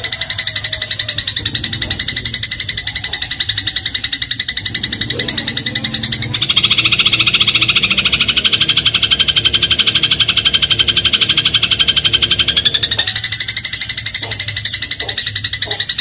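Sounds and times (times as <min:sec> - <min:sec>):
sparrow rattling trill: 0:00.0 - 0:16.0.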